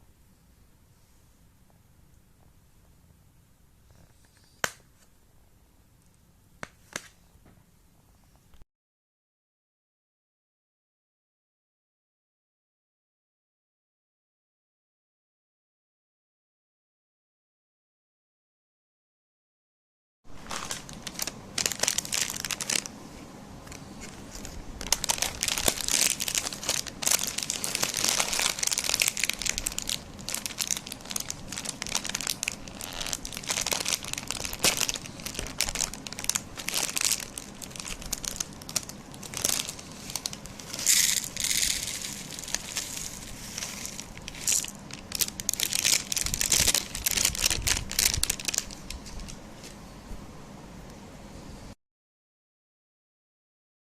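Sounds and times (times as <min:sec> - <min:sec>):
material crinkling and crackling: 0:20.3 - 0:22.9, 0:23.6 - 0:49.8.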